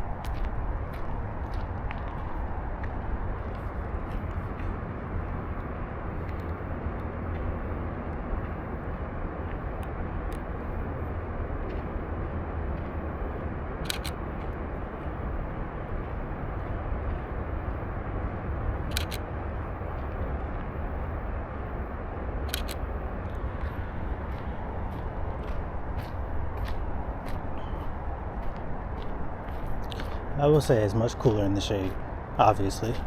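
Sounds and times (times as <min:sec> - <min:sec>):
low outdoor rumble: 0:00.0 - 0:33.0
camera shutter clicking: 0:13.8 - 0:14.2, 0:18.9 - 0:19.2, 0:22.5 - 0:22.8.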